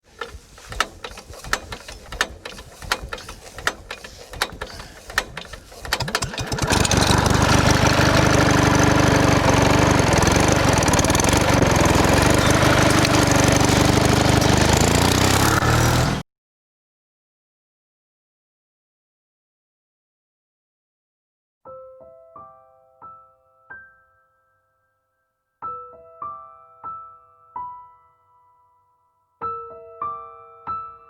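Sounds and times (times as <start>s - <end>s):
motor running: 0.0s - 16.2s.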